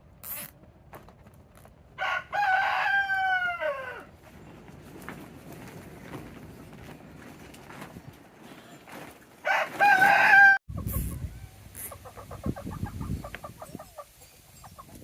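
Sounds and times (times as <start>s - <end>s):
rooster crowing: 2.0s - 4.1s, 9.4s - 10.6s
chickens clucking: 10.7s - 15.0s.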